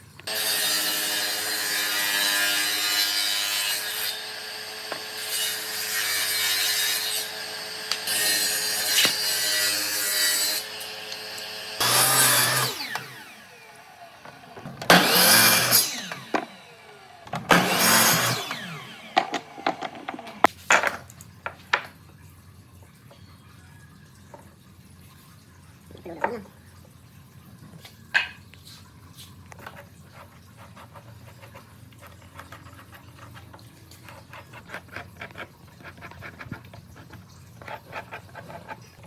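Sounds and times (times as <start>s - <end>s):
power tool cutting wood: 0.2s - 20.5s.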